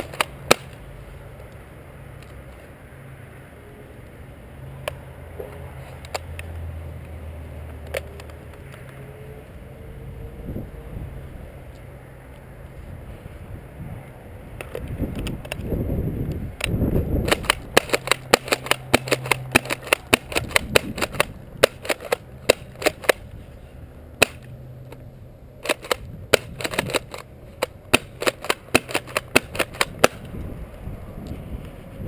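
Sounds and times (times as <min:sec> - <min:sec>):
airsoft shotgun pumped and fired: 0:00.0 - 0:00.8, 0:16.6 - 0:23.2, 0:24.2 - 0:24.5, 0:25.6 - 0:30.3.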